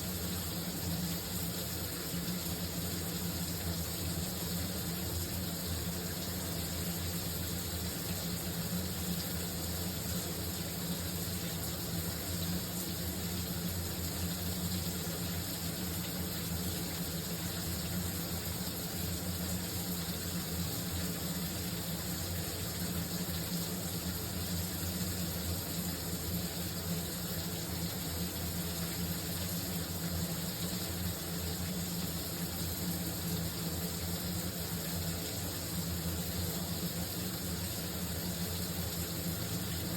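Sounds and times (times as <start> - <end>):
shower running: 0.0 - 39.9.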